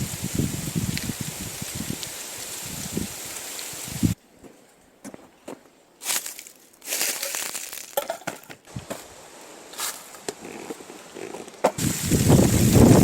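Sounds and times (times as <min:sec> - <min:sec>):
footsteps crunching dry leaves: 0:06.0 - 0:10.2.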